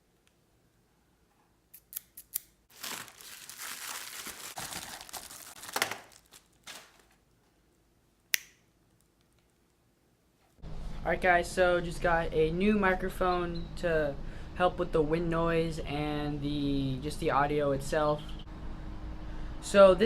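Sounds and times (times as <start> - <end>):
crinkling and rustling: 2.7 - 7.7.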